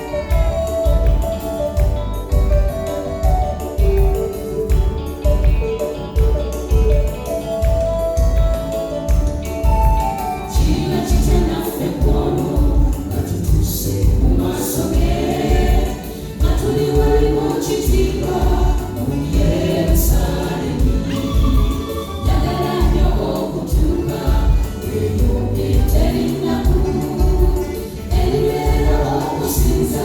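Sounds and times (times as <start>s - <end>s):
choir singing gospel: 0.0s - 5.9s, 9.9s - 30.0s
band with heavy bass beat: 0.0s - 30.0s.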